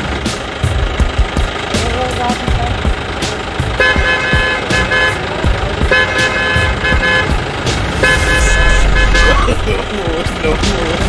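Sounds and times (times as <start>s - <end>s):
vehicle horn honking: 3.8s - 9.9s
low rumble: 7.3s - 11.0s.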